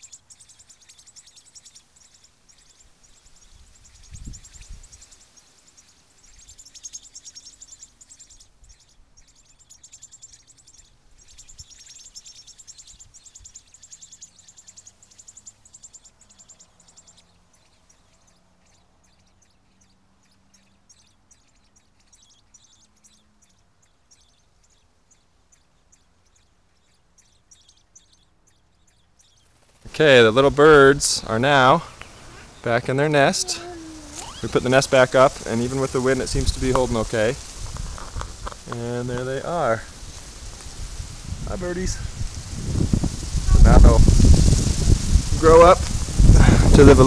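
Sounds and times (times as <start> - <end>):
high pulsing chirping: 0.0 - 37.5
faint ticks: 32.0 - 32.2, 36.7 - 39.3, 40.1 - 40.8.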